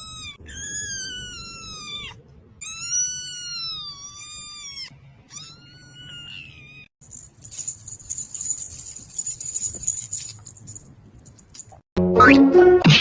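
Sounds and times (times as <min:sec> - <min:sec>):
cat meowing: 0:00.0 - 0:06.9.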